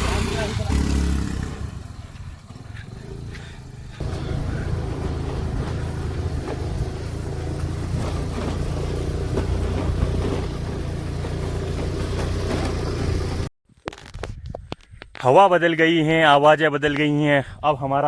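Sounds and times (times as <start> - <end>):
car engine and road noise: 0.0 - 13.5.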